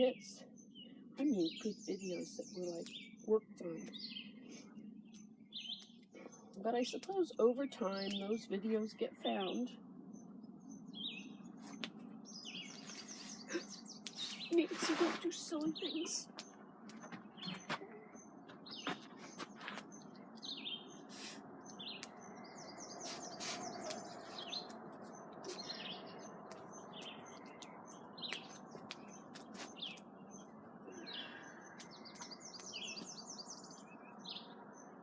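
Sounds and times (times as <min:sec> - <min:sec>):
small birds chirping: 0:00.0 - 0:35.0
sharp pops and clicks: 0:21.9 - 0:22.2.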